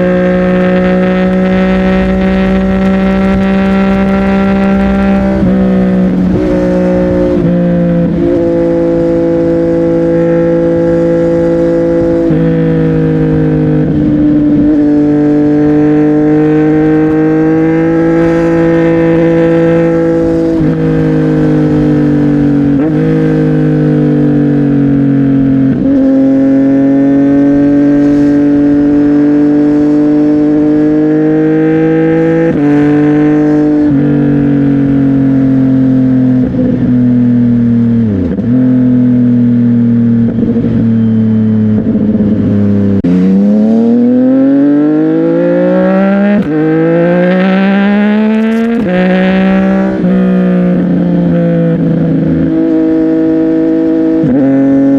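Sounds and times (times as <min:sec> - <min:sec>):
motorcycle engine cruising: 0:00.0 - 0:54.9.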